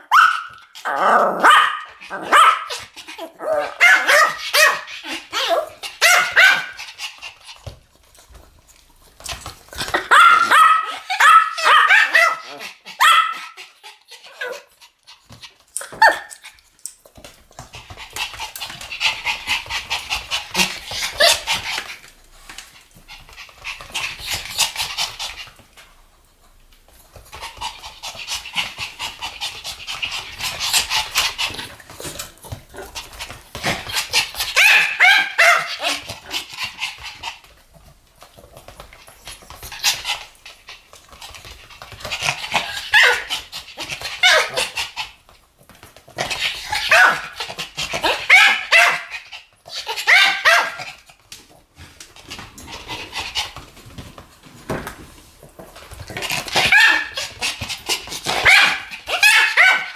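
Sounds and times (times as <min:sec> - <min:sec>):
dogs barking: 0:01.3 - 0:02.8, 0:10.0 - 0:13.6, 0:58.4 - 0:59.9.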